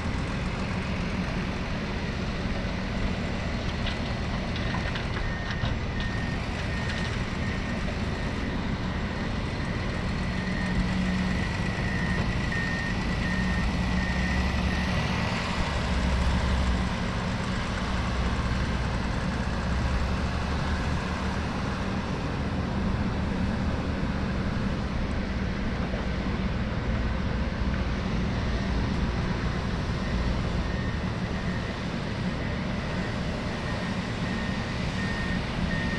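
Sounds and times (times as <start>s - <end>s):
diesel engine running: 0.0s - 35.9s
reversing alarm beeps: 4.7s - 9.0s, 9.7s - 19.4s, 29.8s - 35.9s.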